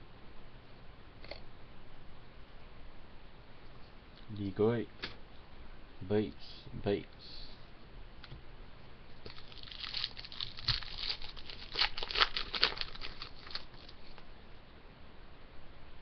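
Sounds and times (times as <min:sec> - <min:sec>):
plastic wrapper crinkling and tearing: 0:09.2 - 0:14.2.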